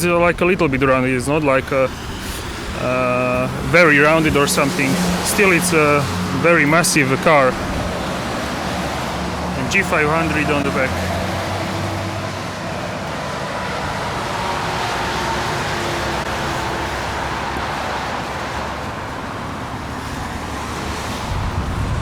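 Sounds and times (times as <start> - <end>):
even hiss: 0.0 - 11.1
vehicle low rumble: 0.0 - 22.0.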